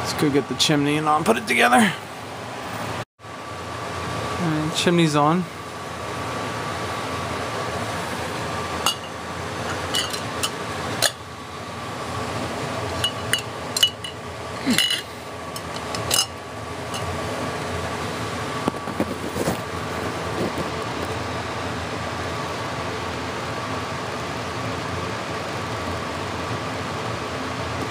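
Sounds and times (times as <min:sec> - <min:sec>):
steady background hum: 0:00.0 - 0:27.9
glass clinking against metal: 0:08.8 - 0:11.2, 0:13.0 - 0:17.1.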